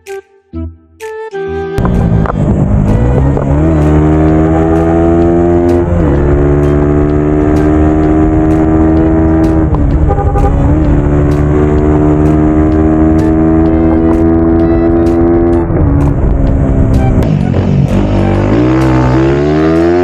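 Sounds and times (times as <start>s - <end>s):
motorcycle engine running: 1.8s - 20.0s.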